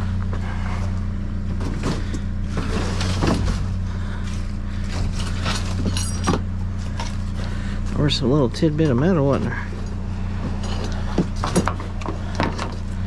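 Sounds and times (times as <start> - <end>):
vehicle engine idling: 0.0 - 13.0
rattles and clanks of scrap: 0.2 - 13.0
metallic clink: 5.8 - 6.4.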